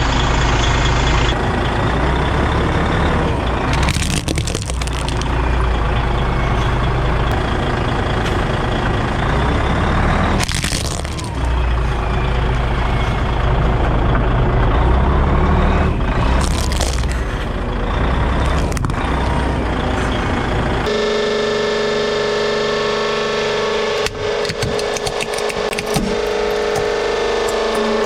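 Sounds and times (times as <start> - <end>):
diesel truck engine rumbling: 0.0 - 28.0
plastic cracking and crushing: 3.7 - 5.4, 10.4 - 11.6, 16.2 - 17.2, 18.5 - 19.0, 24.0 - 28.0
steady machine hum: 10.8 - 28.0.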